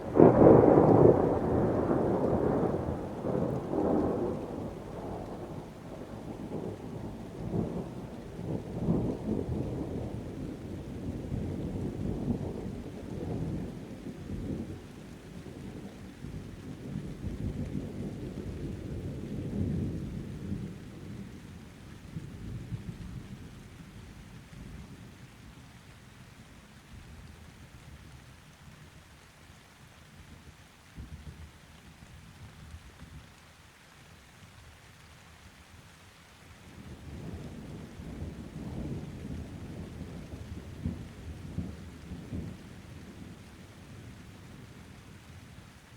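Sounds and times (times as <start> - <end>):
distant thunder rumbling: 0.0 - 21.2, 36.8 - 44.8
steady rain: 0.0 - 45.9.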